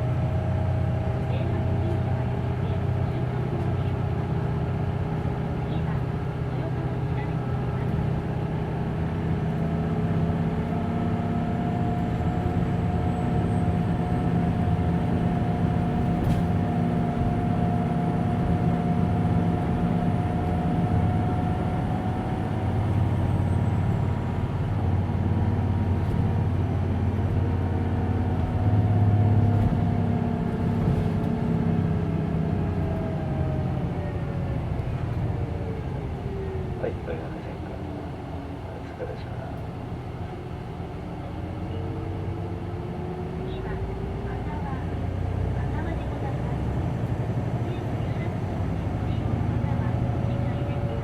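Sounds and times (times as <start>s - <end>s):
bus engine rumble: 0.0s - 51.0s.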